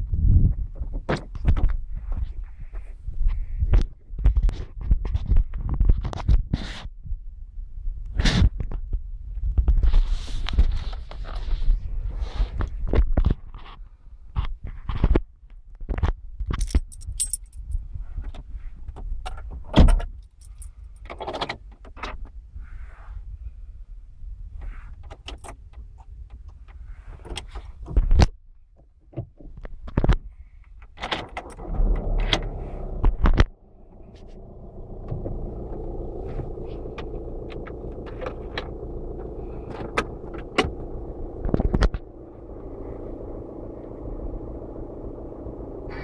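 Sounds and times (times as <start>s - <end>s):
key rattles and clicks: 16.6s - 17.8s
car engine starting: 31.2s - 46.0s
car engine idling: 31.5s - 46.0s.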